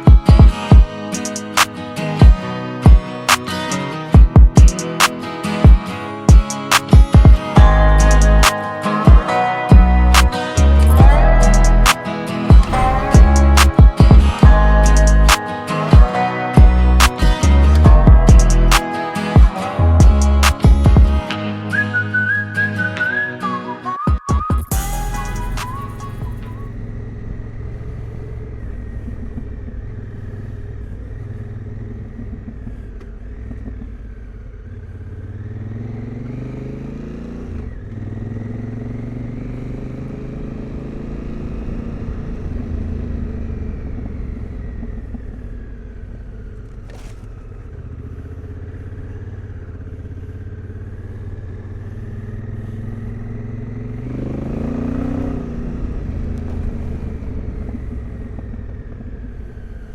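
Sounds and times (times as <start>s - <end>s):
motorcycle engine revving: 0.0s - 22.4s, 24.7s - 59.9s.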